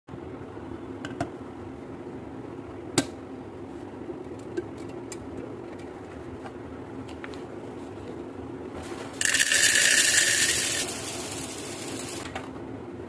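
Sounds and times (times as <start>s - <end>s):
steady low hum: 0.1s - 13.0s.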